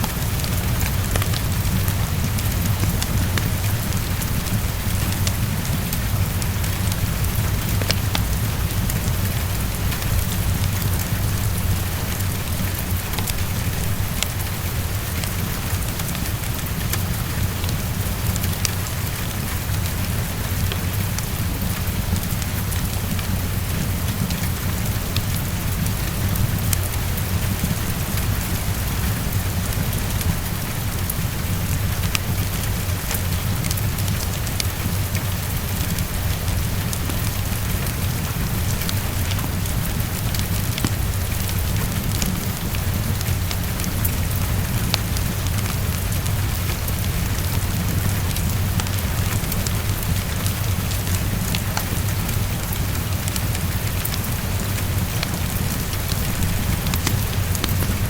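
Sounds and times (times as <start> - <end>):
heavy rain: 0.0 - 58.0
fireplace crackling: 32.0 - 58.0.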